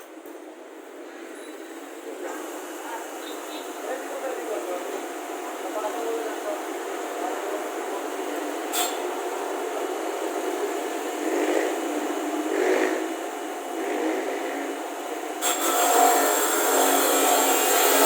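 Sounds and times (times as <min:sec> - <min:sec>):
high-pitched power tool: 0:15.4 - 0:18.0.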